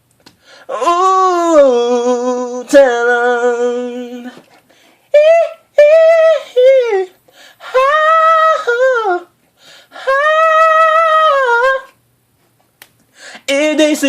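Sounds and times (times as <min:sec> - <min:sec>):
person singing high notes: 0:05.1 - 0:09.3, 0:10.0 - 0:12.0.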